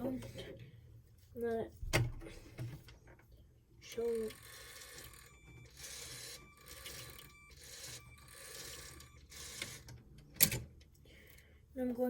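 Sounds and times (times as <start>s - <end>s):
motor whirring through plastic gears: 4.1s - 10.0s.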